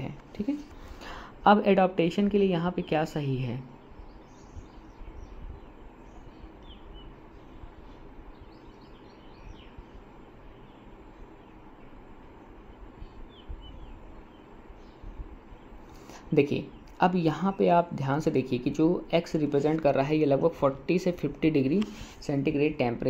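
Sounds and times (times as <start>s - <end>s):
low background noise: 0.0s - 23.0s
faint bird chirps: 2.7s - 17.7s.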